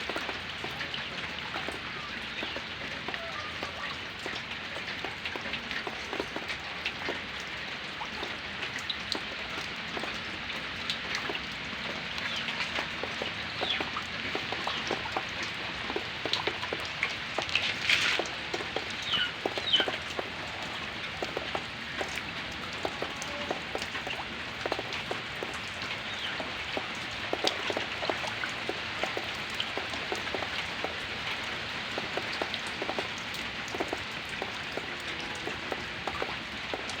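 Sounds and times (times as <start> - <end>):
raindrops ticking on surfaces: 0.0 - 37.0
steady rain falling: 0.0 - 37.0.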